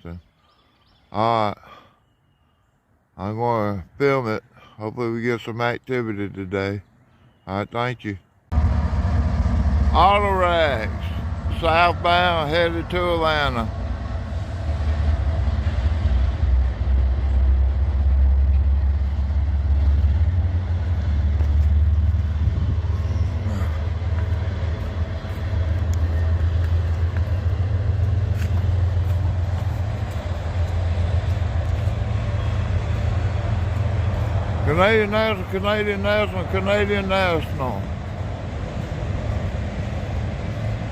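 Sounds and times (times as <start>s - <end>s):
freight train rolling past: 8.5s - 40.9s.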